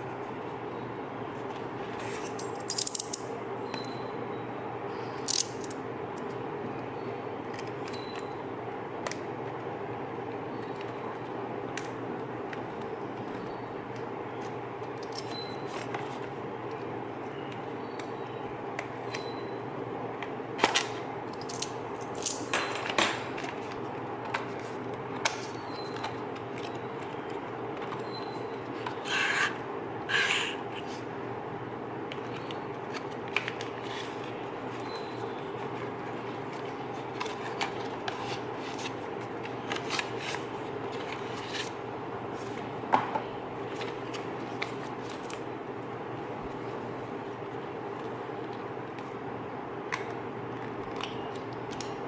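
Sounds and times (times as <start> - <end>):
steady background hum: 0.0 - 52.0
plastic and cardboard rustling: 32.3 - 42.7.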